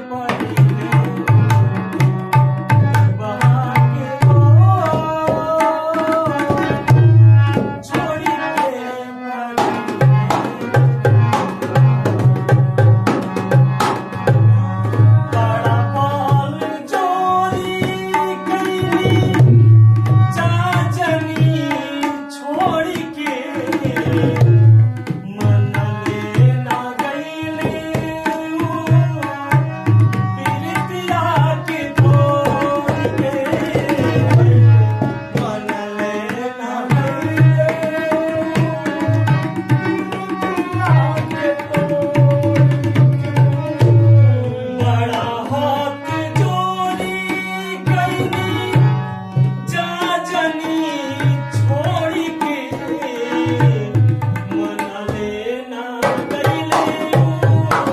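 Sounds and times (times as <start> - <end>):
hand drum rhythm: 0.3 - 8.2, 9.6 - 16.6, 17.5 - 20.8, 27.6 - 31.1, 31.8 - 35.6, 36.9 - 44.2, 56.0 - 57.9.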